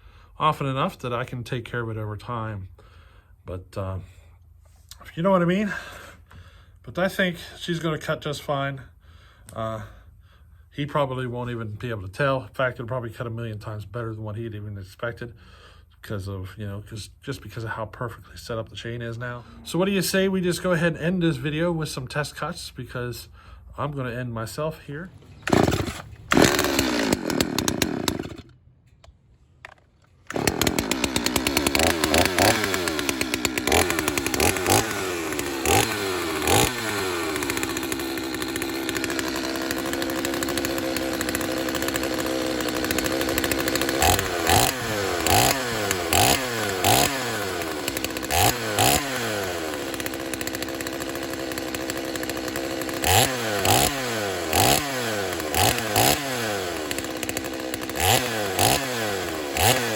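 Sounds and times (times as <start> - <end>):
chainsaw revving: 24.9 - 28.6, 29.7 - 59.9.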